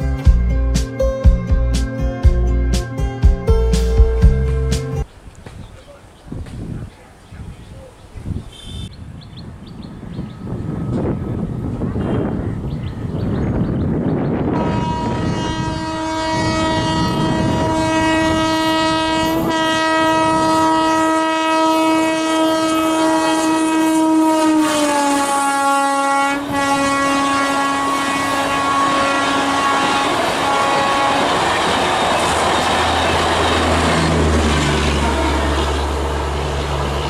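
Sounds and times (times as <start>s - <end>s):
train rumbling on rails: 9.5s - 37.0s
train horn blast: 10.7s - 12.6s, 14.4s - 37.0s.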